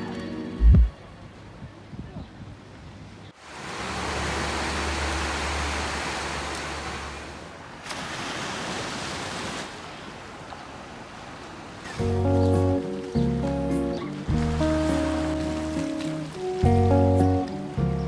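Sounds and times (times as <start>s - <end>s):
low rumble: 0.6s - 1.0s
sea waves rushing: 3.4s - 18.0s.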